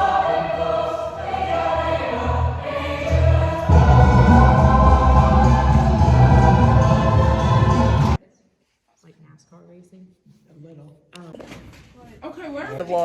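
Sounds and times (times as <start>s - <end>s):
choir singing sustained chords: 0.0s - 8.2s
loud low accompaniment: 0.0s - 8.2s.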